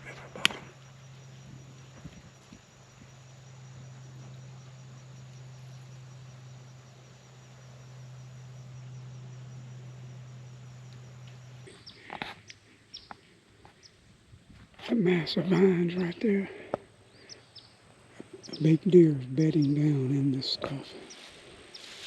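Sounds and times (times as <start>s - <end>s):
crickets chirping: 0.0s - 22.0s
low hum: 0.0s - 22.0s.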